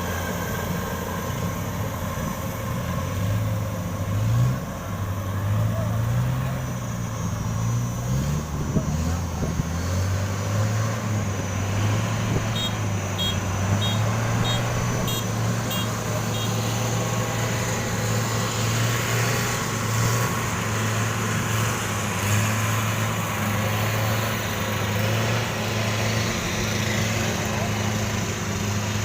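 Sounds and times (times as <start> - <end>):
engine humming: 0.0 - 29.0
high warning beeps: 12.5 - 16.6.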